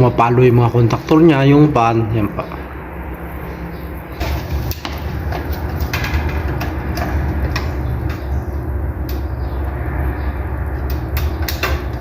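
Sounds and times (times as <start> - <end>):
fan motors humming: 0.0 - 12.0
contactors clacking shut: 4.1 - 9.5, 10.8 - 12.0.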